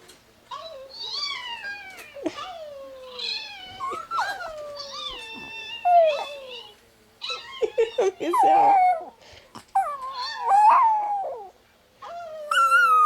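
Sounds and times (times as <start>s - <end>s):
dogs howling: 9.8s - 13.0s.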